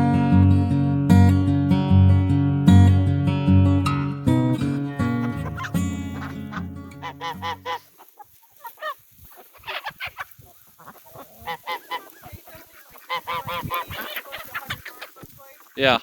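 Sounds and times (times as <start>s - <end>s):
acoustic guitar music: 0.0s - 7.9s
geese honking: 4.2s - 16.0s.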